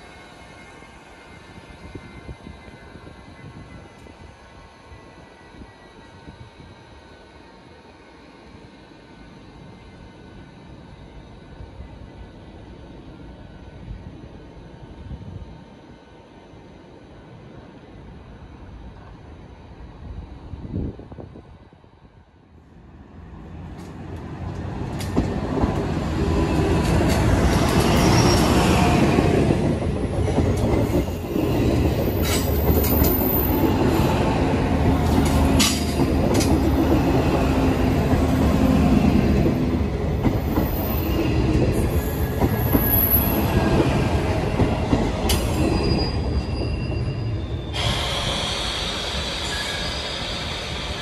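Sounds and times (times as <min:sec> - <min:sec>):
diesel train passing: 0:00.0 - 0:51.0
wheel squeal: 0:45.4 - 0:51.0.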